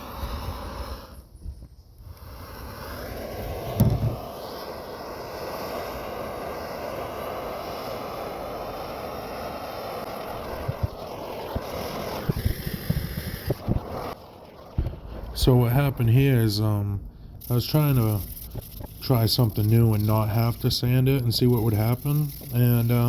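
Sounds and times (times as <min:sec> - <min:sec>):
propane torch flame roaring: 0:00.0 - 0:23.0
loud thump: 0:03.8 - 0:04.2.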